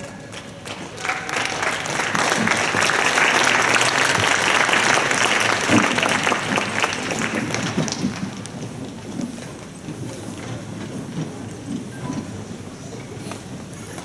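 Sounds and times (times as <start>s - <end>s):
spectators clapping: 0.0s - 9.0s.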